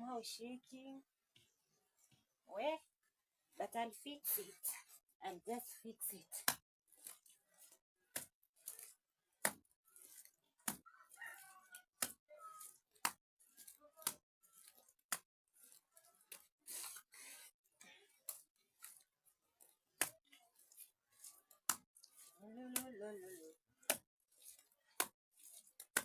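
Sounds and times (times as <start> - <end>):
scraping and rubbing mud: 1.4 - 26.0
hands slapping wet mud: 6.4 - 17.5, 19.6 - 26.0.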